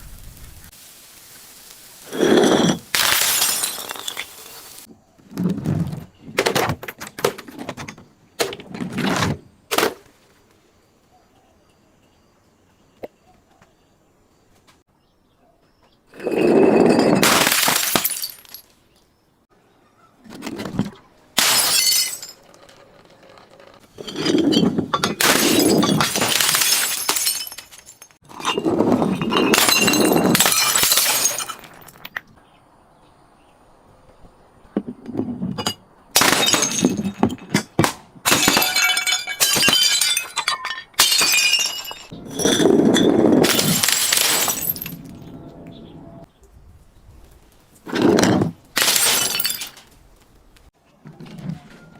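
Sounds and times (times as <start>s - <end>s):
glass crushing and shattering: 1.4s - 4.9s, 16.4s - 18.7s, 21.4s - 22.8s, 24.0s - 32.2s, 35.6s - 45.1s, 47.9s - 50.0s.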